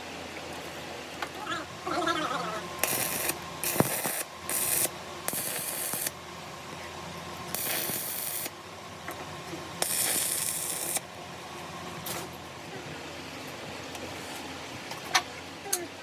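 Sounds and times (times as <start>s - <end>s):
low steady hum: 0.0s - 16.0s
hissing bursts: 2.8s - 6.1s, 7.5s - 8.5s.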